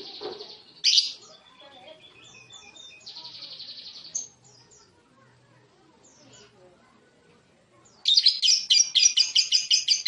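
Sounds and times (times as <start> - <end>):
lovebird chirping and trilling: 0.0 - 4.9, 7.9 - 10.0.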